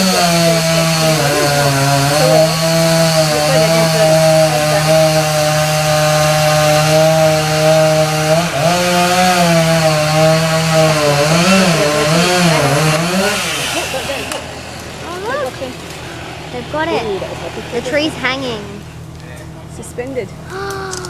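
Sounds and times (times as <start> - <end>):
chainsaw cutting wood: 0.0 - 15.5.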